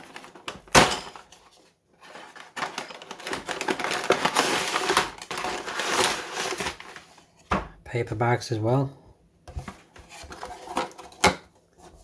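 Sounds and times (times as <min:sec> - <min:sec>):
paper bags rustling: 0:00.0 - 0:07.3
plastic bricks rattling: 0:02.0 - 0:07.0.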